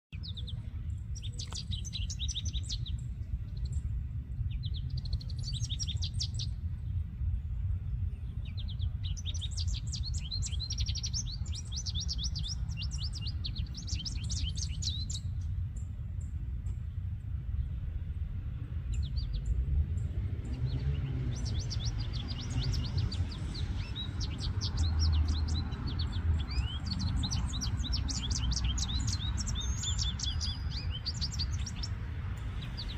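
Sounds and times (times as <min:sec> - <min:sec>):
songbird twittering: 0:00.1 - 0:07.0, 0:07.8 - 0:17.8, 0:18.8 - 0:32.9
steady low rumble: 0:00.1 - 0:32.9.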